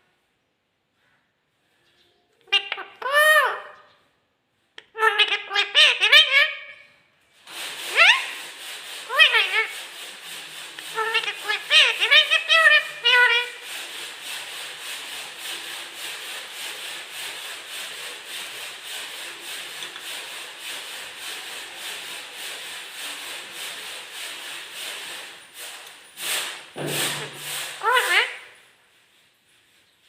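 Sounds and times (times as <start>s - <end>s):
parrot calling: 2.4s - 3.9s, 4.8s - 6.9s, 7.9s - 9.9s, 10.7s - 13.7s, 26.8s - 28.6s
rasping rubbing noise: 7.3s - 30.0s.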